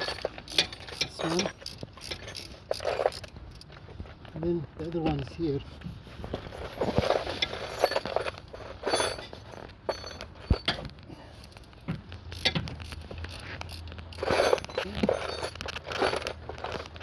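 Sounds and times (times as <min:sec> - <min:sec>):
wrench clicking on bolt: 0:11.5 - 0:14.8.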